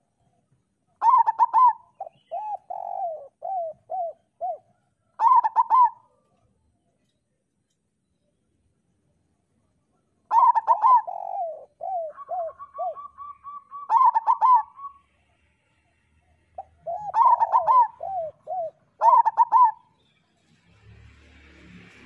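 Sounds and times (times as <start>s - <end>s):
dove cooing: 1.0s - 6.2s, 10.3s - 15.1s, 16.6s - 19.9s.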